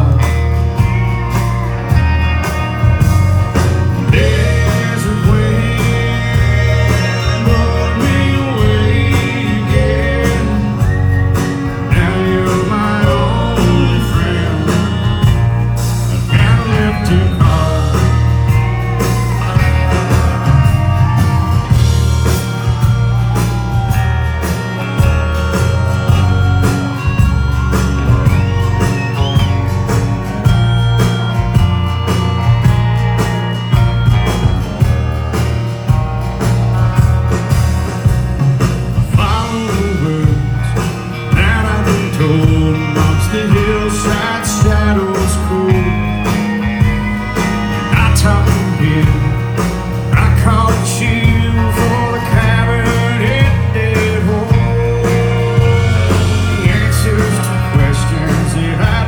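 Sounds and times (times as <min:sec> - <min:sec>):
country band instrumental: 0:00.0 - 0:59.0
lead instrument soloing: 0:13.3 - 0:50.0.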